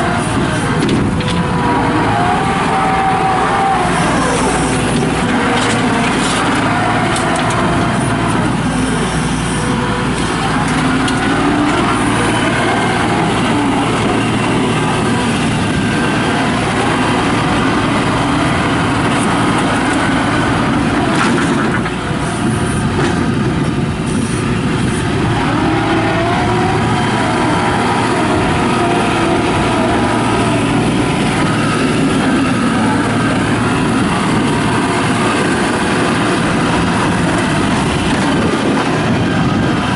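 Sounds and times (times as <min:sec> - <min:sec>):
loader engine droning: 0:00.0 - 0:39.9
knocks and clanks: 0:00.3 - 0:01.7, 0:04.7 - 0:08.4, 0:20.9 - 0:23.8.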